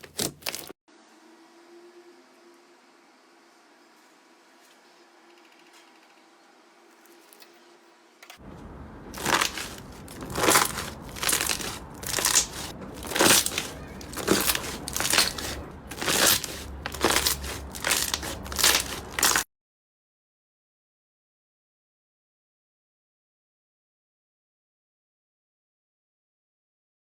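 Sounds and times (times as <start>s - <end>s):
hands squeezing slime: 9.2s - 19.4s.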